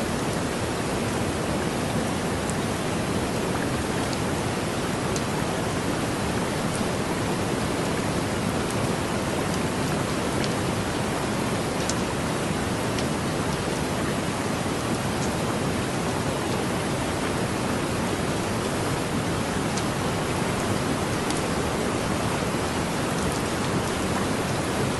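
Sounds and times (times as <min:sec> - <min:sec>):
heavy rain falling: 0:00.0 - 0:24.9
faint raindrop ticks: 0:05.1 - 0:05.3, 0:11.7 - 0:12.1, 0:12.9 - 0:13.3, 0:15.2 - 0:15.4, 0:19.6 - 0:20.0, 0:21.1 - 0:21.5, 0:23.2 - 0:24.0.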